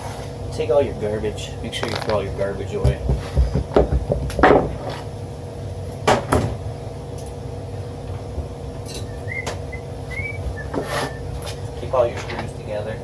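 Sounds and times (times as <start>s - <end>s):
steady low hum: 0.0s - 13.0s
knocks of panels being handled: 2.8s - 5.0s.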